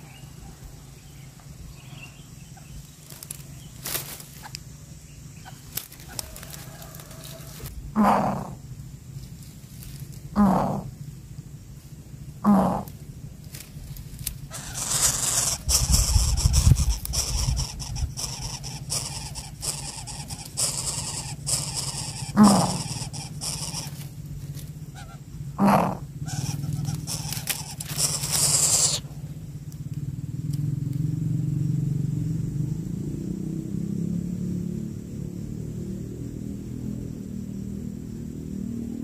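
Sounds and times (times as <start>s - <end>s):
harsh hissing noise: 0.0s - 29.6s
steady low hum: 0.0s - 39.0s
short sweeping bird calls: 14.5s - 24.1s, 24.9s - 29.1s.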